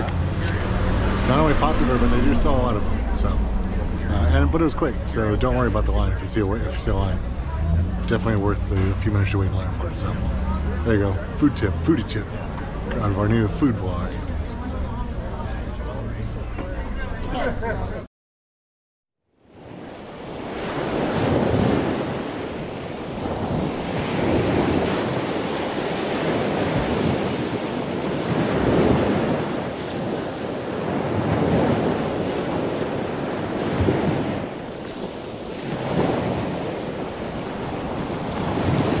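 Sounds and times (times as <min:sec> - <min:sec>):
rushing water: 0:00.0 - 0:14.9, 0:19.4 - 0:39.0
wind buffeting microphone: 0:19.8 - 0:39.0.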